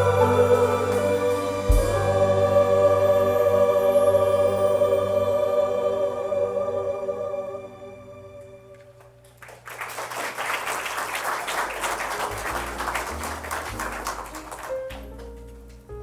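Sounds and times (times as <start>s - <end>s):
low music notes: 0.0s - 8.9s
choir singing: 0.0s - 9.0s
congregation clapping: 9.0s - 15.8s.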